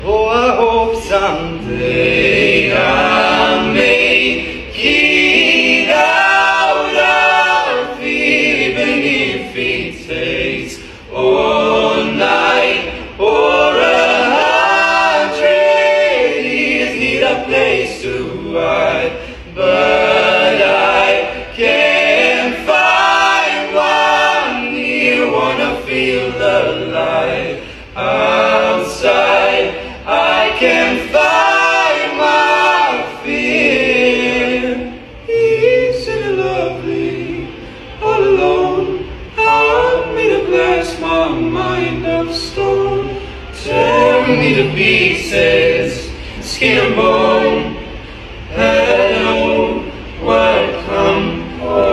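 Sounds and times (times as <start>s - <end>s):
choir singing a cappella: 0.0s - 51.9s
singers breathing: 4.4s - 4.7s, 10.7s - 11.1s, 19.1s - 19.5s, 27.6s - 28.0s, 43.1s - 43.6s, 46.0s - 46.5s, 47.9s - 48.5s.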